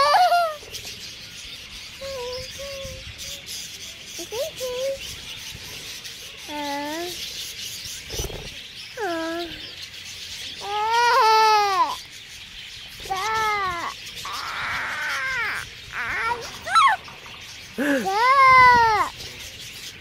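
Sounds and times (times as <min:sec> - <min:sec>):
child crying out: 0:00.0 - 0:00.6, 0:10.6 - 0:12.0, 0:13.1 - 0:17.0, 0:17.8 - 0:19.1
faint bird chirping: 0:00.0 - 0:20.0.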